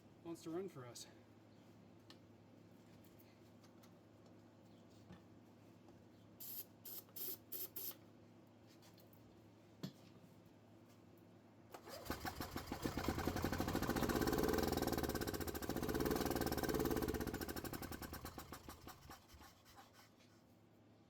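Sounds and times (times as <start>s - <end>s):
golf cart engine cranking and running: 11.8s - 19.3s.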